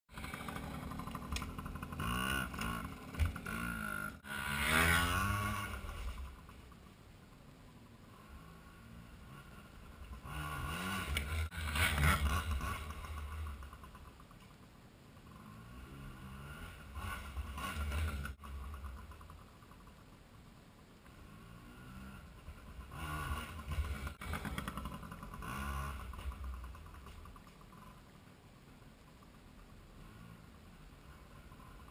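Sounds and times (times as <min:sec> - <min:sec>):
pit bike engine revving: 0:00.1 - 0:06.9, 0:07.8 - 0:14.4, 0:15.2 - 0:20.1, 0:21.1 - 0:28.0.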